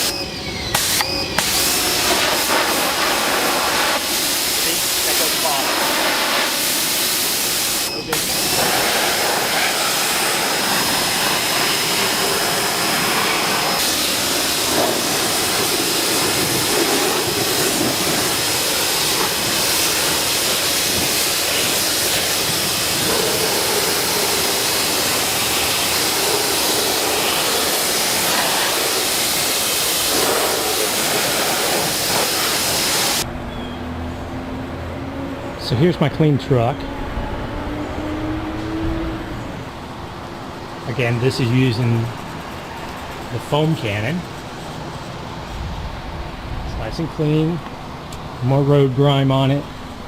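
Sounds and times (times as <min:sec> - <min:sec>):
thin high whine: 0:00.0 - 0:05.8, 0:07.4 - 0:30.2
pressure washer spraying water: 0:00.0 - 0:33.3.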